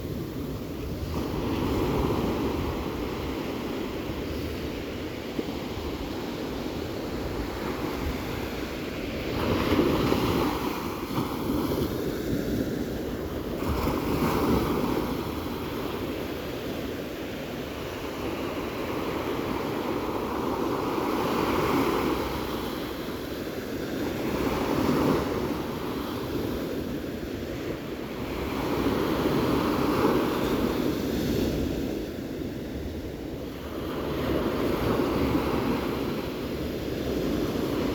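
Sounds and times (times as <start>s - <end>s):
ocean waves breaking: 0.0s - 37.9s
wind noise on microphone: 0.0s - 37.9s.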